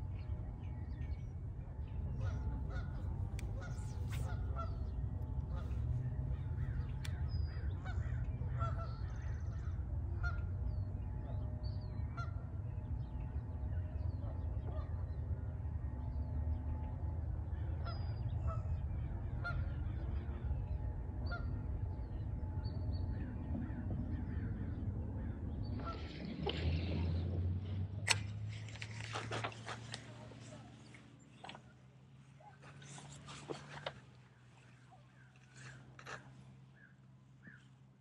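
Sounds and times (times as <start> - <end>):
steady low rumble: 0.0 - 33.1
birds calling: 0.0 - 38.0.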